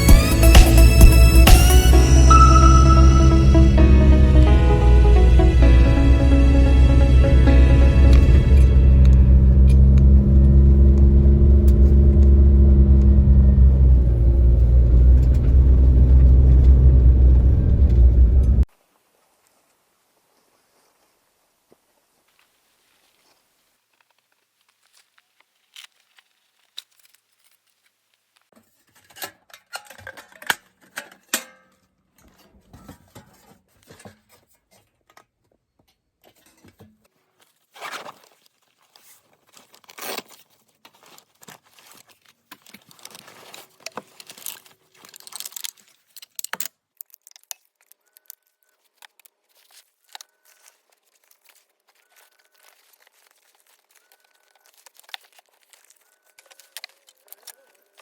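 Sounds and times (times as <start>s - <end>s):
short high tone: 0.0s - 10.0s
gear rustling and clattering: 37.5s - 47.9s.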